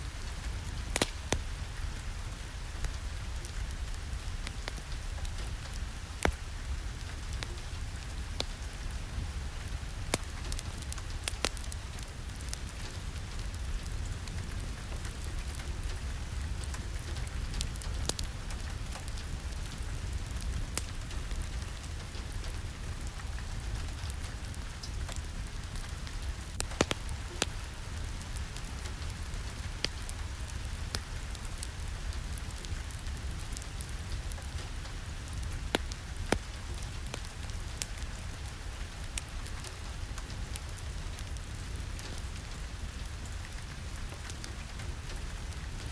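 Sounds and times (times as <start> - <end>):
steady rain hissing: 0.0 - 45.9
raindrops clicking: 26.5 - 31.1.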